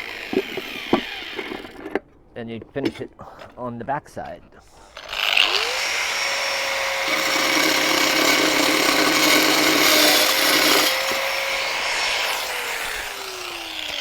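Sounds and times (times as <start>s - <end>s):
power tool motor whine: 0.0s - 2.0s, 5.0s - 14.0s
diamond blade grinding tile: 7.2s - 13.0s.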